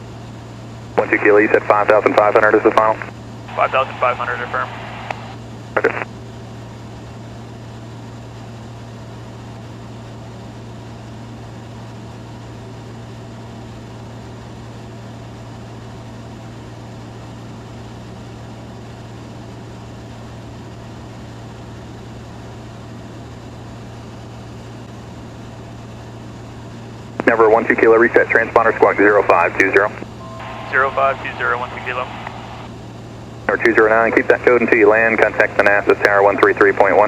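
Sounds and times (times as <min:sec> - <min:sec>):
aircraft engine and propeller hum: 0:00.0 - 0:37.0.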